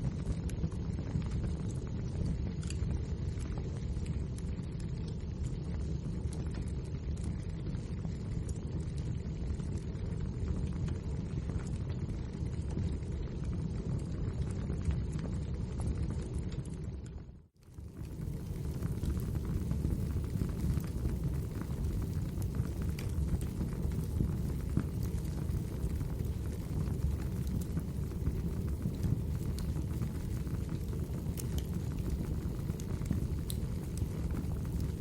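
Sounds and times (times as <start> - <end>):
wood fire crackling: 0.1 - 35.0.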